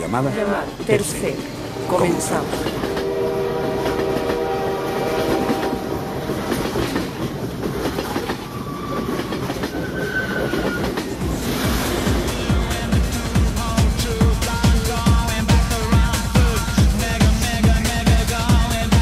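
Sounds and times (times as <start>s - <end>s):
train wheels rumbling and clattering: 0.5s - 19.0s
train horn chord: 1.7s - 6.5s.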